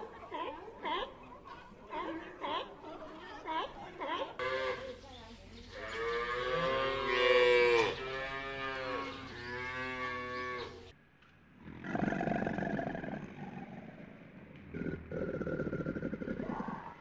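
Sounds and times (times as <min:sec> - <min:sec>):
cow mooing: 0:05.8 - 0:10.8.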